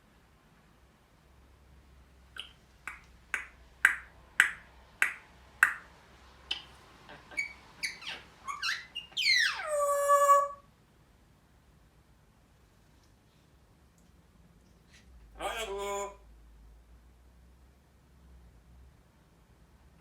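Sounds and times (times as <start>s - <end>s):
parrot clicking: 2.4s - 5.9s
parrot chirping: 2.4s - 10.6s.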